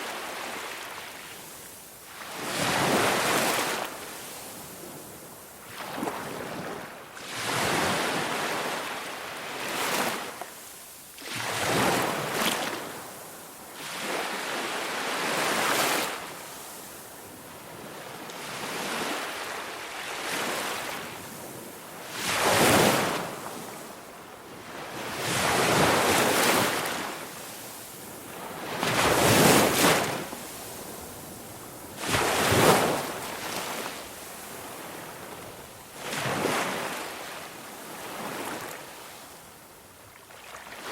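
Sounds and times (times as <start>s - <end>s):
ocean waves washing ashore: 0.0s - 40.9s.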